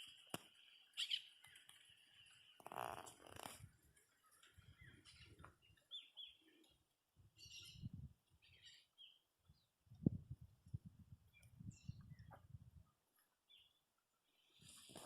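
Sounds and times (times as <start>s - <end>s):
bird chirps: 0.1s - 3.1s, 4.1s - 6.8s, 7.4s - 9.7s.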